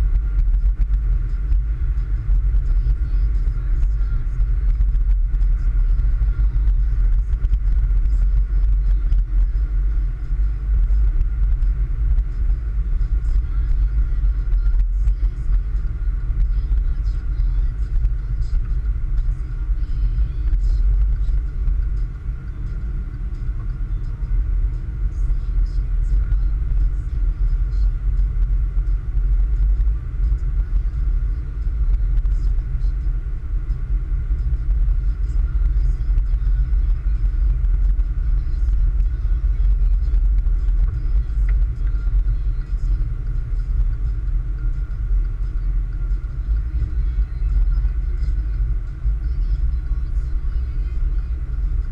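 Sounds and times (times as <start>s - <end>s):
car engine and tyres rumbling: 0.0s - 51.9s.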